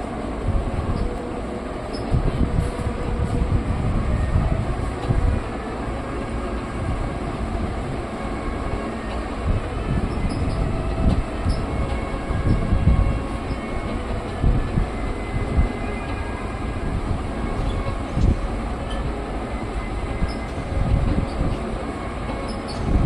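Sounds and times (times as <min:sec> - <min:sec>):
train wheels rumbling on track: 0:00.0 - 0:23.0.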